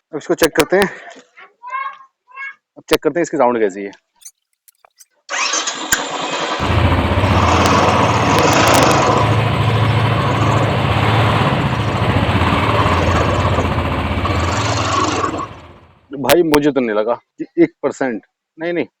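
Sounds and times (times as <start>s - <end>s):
motorcycle engine starting and idling: 4.9s - 16.1s.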